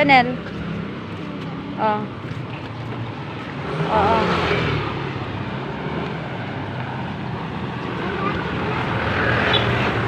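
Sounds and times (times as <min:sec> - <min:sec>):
street traffic: 0:00.0 - 0:10.0
vehicle passing close by: 0:02.8 - 0:10.0.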